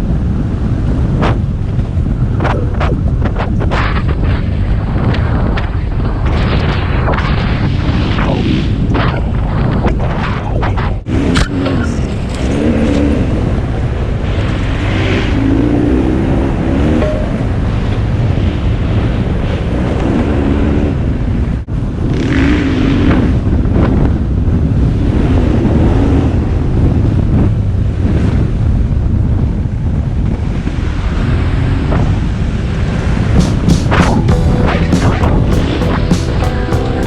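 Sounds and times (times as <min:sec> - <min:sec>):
wind buffeting microphone: 0:00.0 - 0:16.7.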